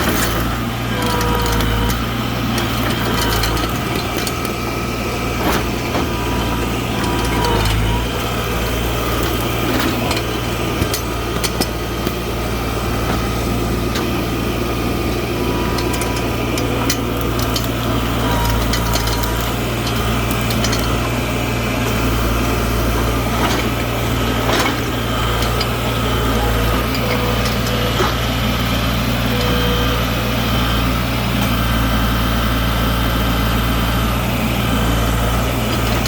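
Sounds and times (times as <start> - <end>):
machine clicks and knocks: 0.0 - 4.6, 5.3 - 12.4, 15.5 - 21.2
skid steer engine running: 0.0 - 36.0.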